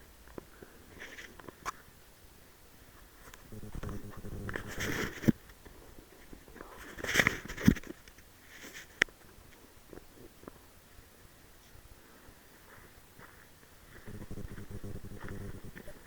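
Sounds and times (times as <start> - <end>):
person rustling and scuffing: 3.0 - 9.0.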